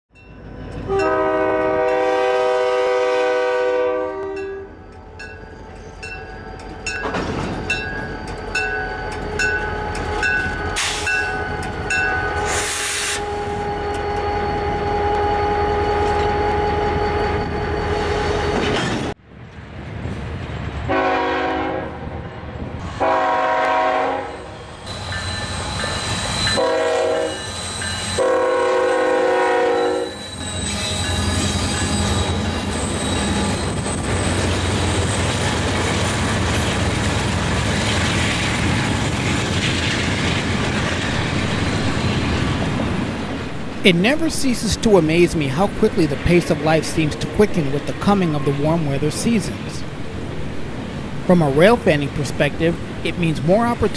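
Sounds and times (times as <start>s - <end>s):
crossing bell ringing: 0.1s - 2.2s, 4.1s - 12.4s, 24.0s - 35.6s
train rumbling: 0.2s - 53.9s
locomotive horn blasts: 0.8s - 4.8s, 11.0s - 18.8s, 20.9s - 22.1s, 22.8s - 25.0s, 26.5s - 27.5s, 28.1s - 32.4s.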